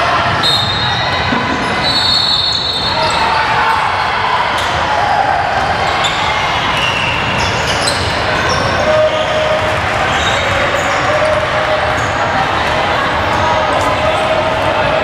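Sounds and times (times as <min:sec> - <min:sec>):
chatter of spectators: 0:00.0 - 0:15.0
sneakers squeaking on court: 0:05.9 - 0:11.2.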